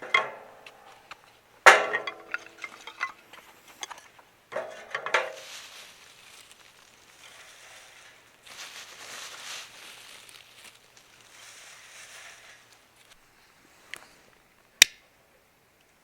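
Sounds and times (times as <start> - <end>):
faint hiss: 0.0 - 16.0
metal cookware clinking: 1.7 - 5.4.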